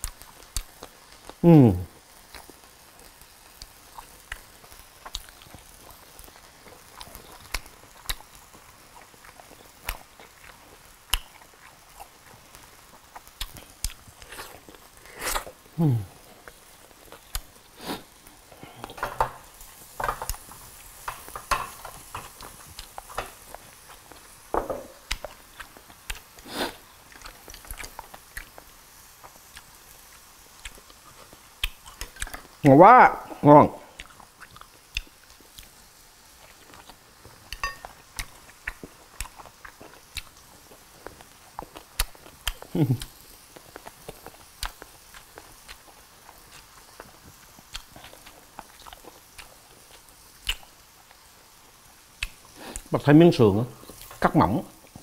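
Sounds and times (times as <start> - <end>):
person chewing crispy food: 0.0 - 1.4, 2.0 - 32.7, 33.3 - 53.0
faint meat sizzle: 0.0 - 55.0
chewing and biting: 25.0 - 32.5, 33.9 - 35.8, 36.4 - 50.8
utensils clicking on plates: 37.6 - 38.0.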